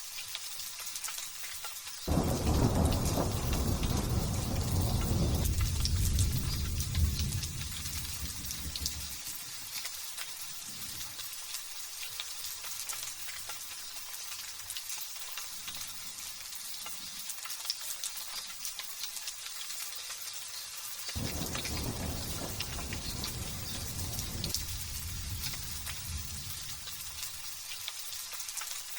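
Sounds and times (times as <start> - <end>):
light drizzling rain: 0.0 - 28.9
low thunder rumble: 2.1 - 9.2, 21.2 - 27.5.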